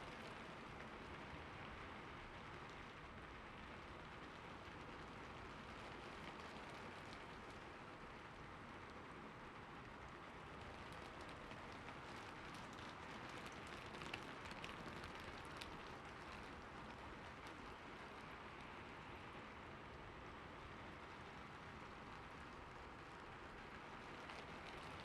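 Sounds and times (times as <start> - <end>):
steady rain hiss: 0.0 - 25.0
raindrop ticks: 9.8 - 18.8, 20.9 - 25.0.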